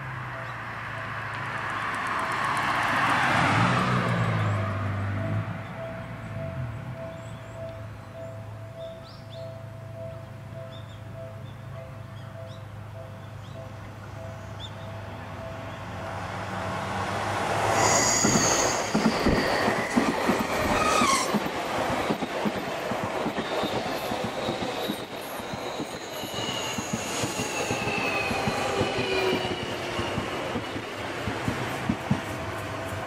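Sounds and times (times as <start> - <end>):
brake squealing: 17.6 - 21.5, 23.4 - 30.9
train wheels clattering: 17.6 - 33.0.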